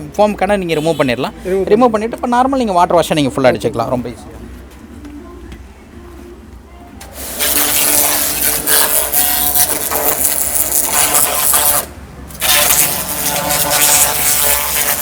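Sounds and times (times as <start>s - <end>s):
pressure washer water spray: 7.1s - 15.0s
pump humming: 7.2s - 15.0s.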